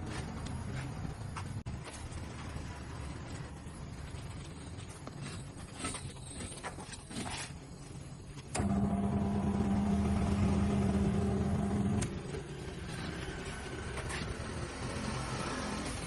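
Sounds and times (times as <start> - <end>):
motor humming: 8.5 - 16.0.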